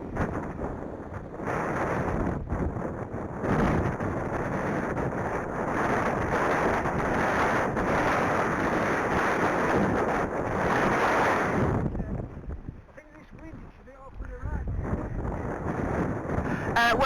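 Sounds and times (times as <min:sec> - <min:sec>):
strong wind on microphone: 0:00.0 - 0:17.0.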